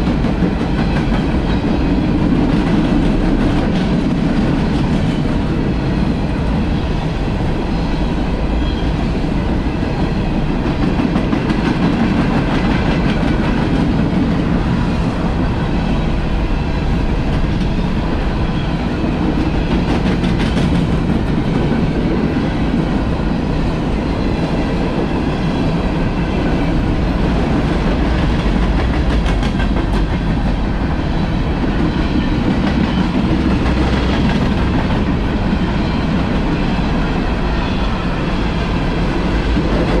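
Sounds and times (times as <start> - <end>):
freight train wheels rumbling: 0.0 - 40.0.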